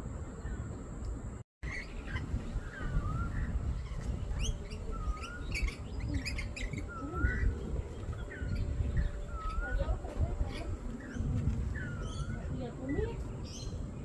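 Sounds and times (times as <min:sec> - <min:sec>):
parrots chirping: 0:01.6 - 0:09.8.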